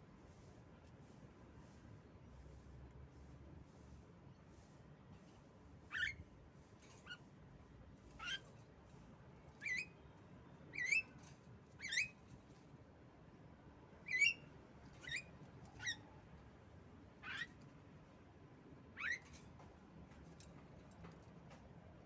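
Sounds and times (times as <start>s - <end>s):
bird giving squeaky calls: 5.9s - 6.2s, 8.2s - 8.4s, 11.8s - 12.1s, 14.1s - 14.4s, 15.0s - 16.1s, 17.2s - 17.5s, 19.0s - 19.3s.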